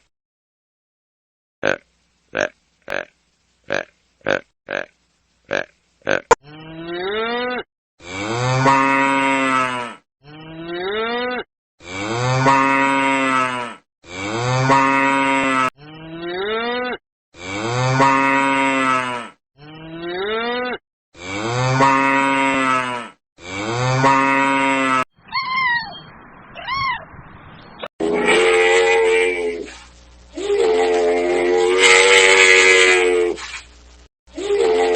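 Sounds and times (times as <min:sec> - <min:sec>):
short high cries: 0:25.3 - 0:26.0.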